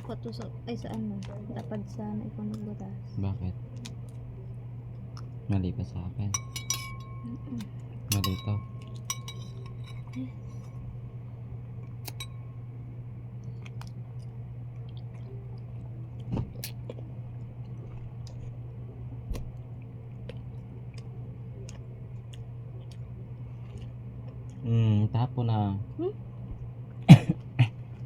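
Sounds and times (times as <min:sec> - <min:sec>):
quiet chewing: 0:00.0 - 0:03.0, 0:03.6 - 0:05.4, 0:13.4 - 0:24.7
steady low hum: 0:00.0 - 0:28.0.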